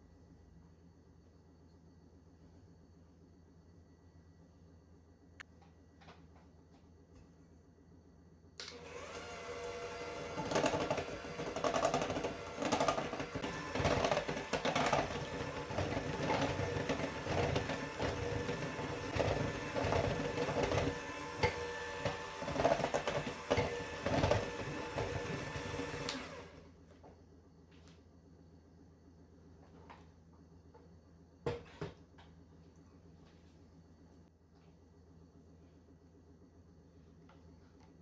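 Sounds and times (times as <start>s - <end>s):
electric mixer motor hum: 8.7s - 26.7s.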